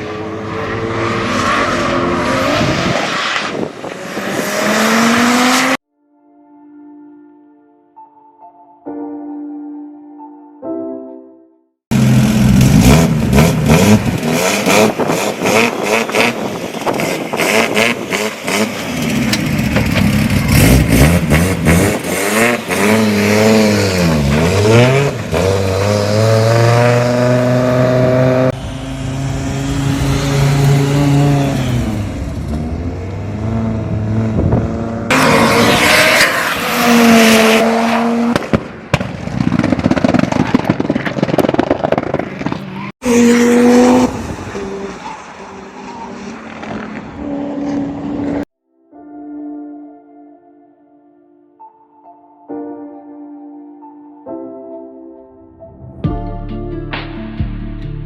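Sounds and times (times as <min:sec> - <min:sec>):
car engines revving: 0:00.0 - 0:05.8, 0:11.9 - 0:38.6, 0:41.9 - 0:48.5.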